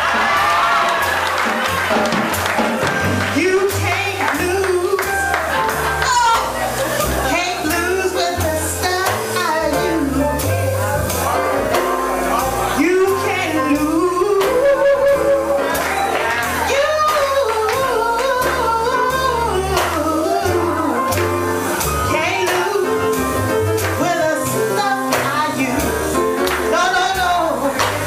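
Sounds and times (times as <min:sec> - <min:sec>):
drums with cymbal strokes: 0:00.0 - 0:28.0
jazz band playing: 0:00.0 - 0:28.0
walking bass line: 0:00.0 - 0:28.0
woman singing: 0:03.2 - 0:05.4, 0:06.0 - 0:10.5, 0:12.8 - 0:28.0.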